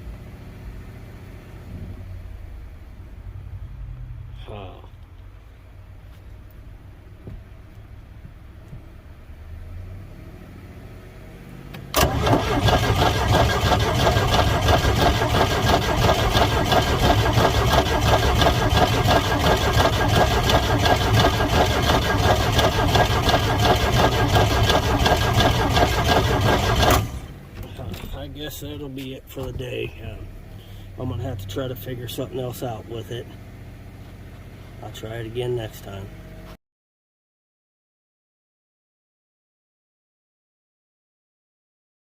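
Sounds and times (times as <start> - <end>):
boat engine cranked by starter: 11.9 - 28.3
fast steady chugging: 12.0 - 27.3.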